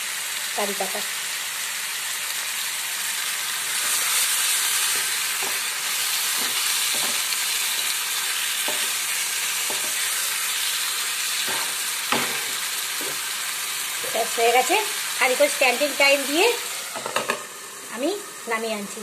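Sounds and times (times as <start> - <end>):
food sizzling in a pan: 0.0 - 19.0
spatula scraping and tapping pan: 4.8 - 7.9, 8.6 - 9.0, 9.6 - 10.1, 11.4 - 13.3, 17.0 - 17.4.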